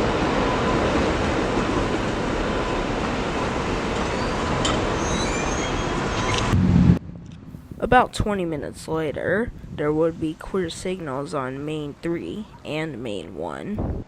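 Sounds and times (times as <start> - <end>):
freight train cars rolling: 0.0 - 6.6
faint high wheel squeals: 4.1 - 6.4.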